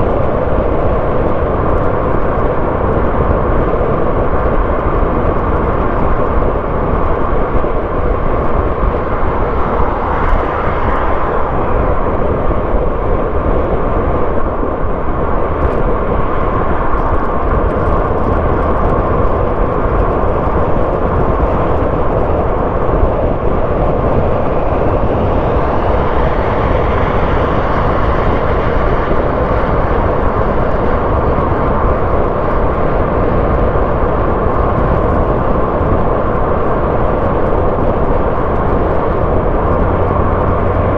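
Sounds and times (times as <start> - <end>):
car engine: 0.0 - 33.4, 36.4 - 40.9
tyre road noise: 0.0 - 40.9
faint rising whine: 4.0 - 30.2.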